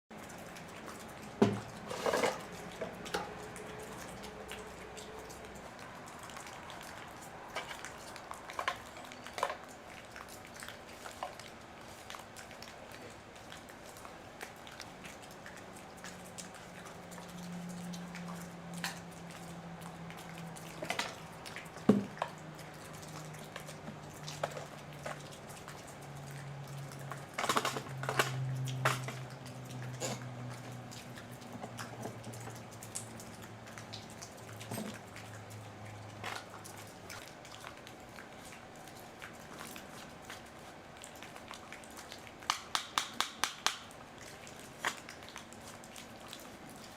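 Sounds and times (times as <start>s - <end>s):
tools clicking and tapping: 42.5s - 43.8s.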